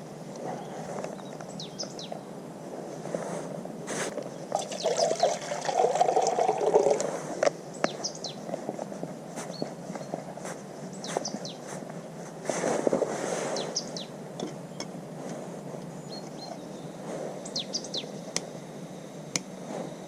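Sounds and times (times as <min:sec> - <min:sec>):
water poured into a pot: 0:04.5 - 0:07.1.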